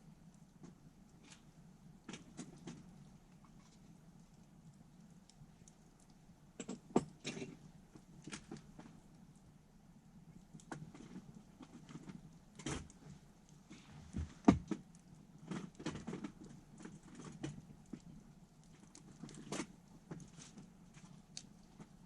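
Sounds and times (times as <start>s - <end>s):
campfire crackling and popping: 10.1s - 22.0s.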